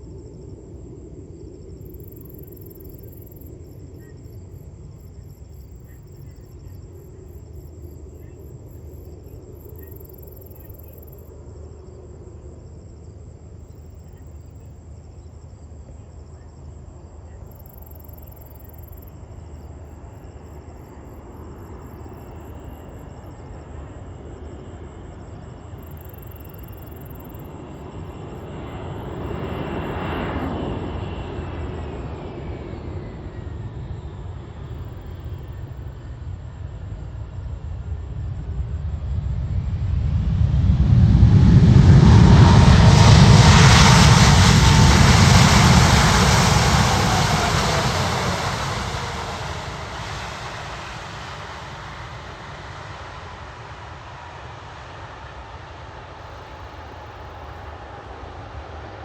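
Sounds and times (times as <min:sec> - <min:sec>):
airliner engines passing: 0:17.4 - 0:59.0.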